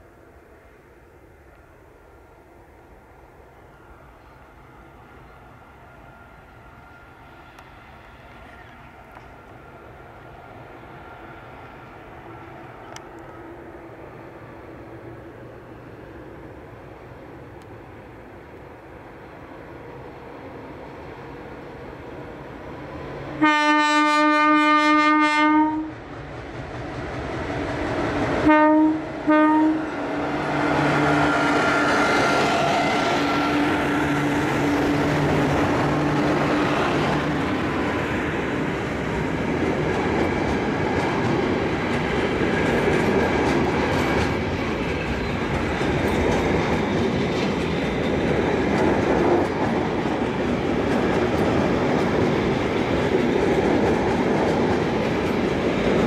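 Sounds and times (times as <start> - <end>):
train wheels rolling on rail: 1.5 - 56.0
locomotive air horn blasts: 23.4 - 25.9, 28.4 - 30.0.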